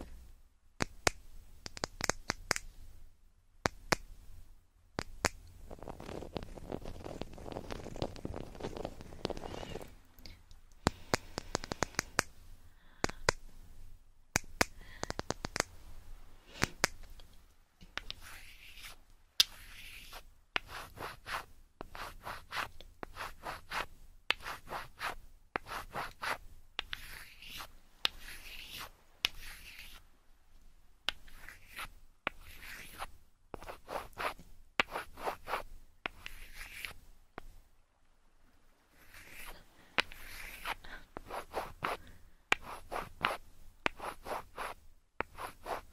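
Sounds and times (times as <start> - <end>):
fingers scratching microphone: 5.0 - 9.9, 18.0 - 30.0, 31.1 - 37.0, 39.0 - 45.9.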